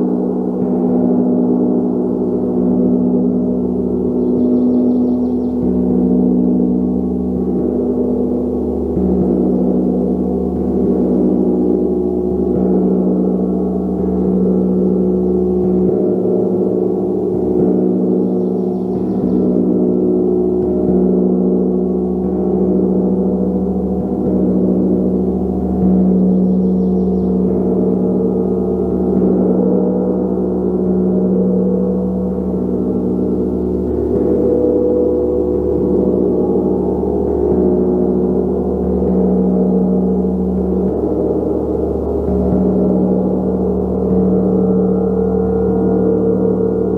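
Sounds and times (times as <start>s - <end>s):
gong ringing: 0.0s - 46.9s.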